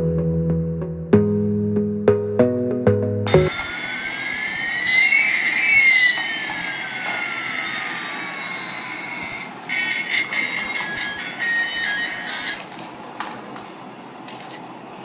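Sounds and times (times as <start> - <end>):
electronic jet engine effect: 3.3 - 6.4.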